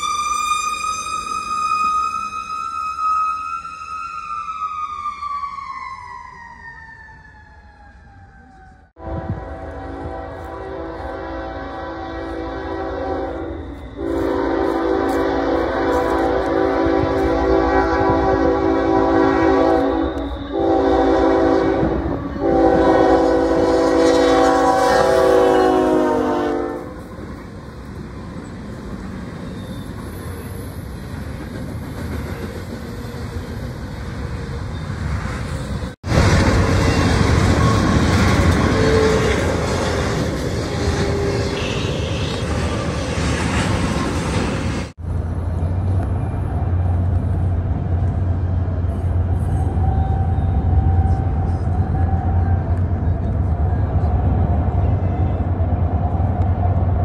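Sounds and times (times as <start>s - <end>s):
freight train rumbling past: 0.0s - 57.0s
locomotive air horn blowing: 9.0s - 27.1s, 40.9s - 42.5s.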